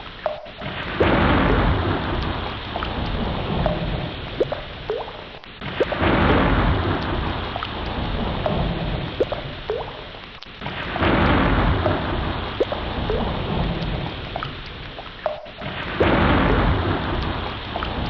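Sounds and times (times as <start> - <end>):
ocean waves surging: 10.6 - 14.4.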